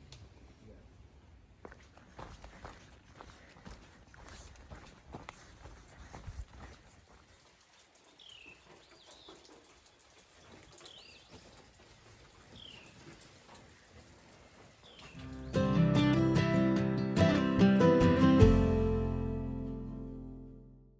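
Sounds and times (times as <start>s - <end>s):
soft patter of rain: 6.4s - 15.6s.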